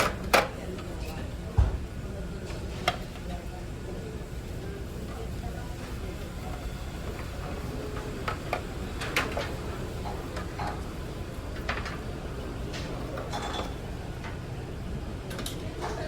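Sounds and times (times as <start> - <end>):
dishes and cutlery clinking: 13.2 - 13.8.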